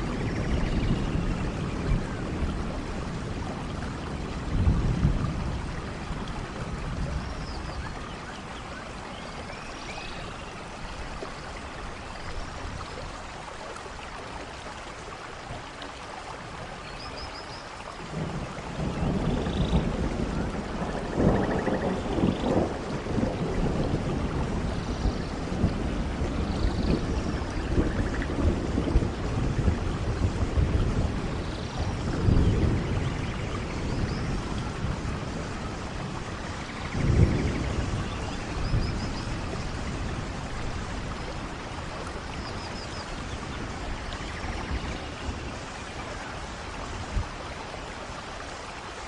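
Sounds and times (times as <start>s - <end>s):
rolling thunder: 0.0s - 8.1s, 18.0s - 47.4s
heavy rain: 0.0s - 49.0s.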